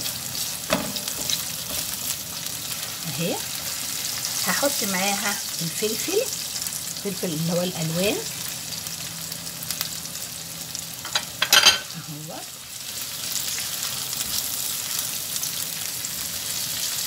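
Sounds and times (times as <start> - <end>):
vegetables sizzling in a pan: 0.0 - 17.0
spatula stirring: 0.4 - 2.2.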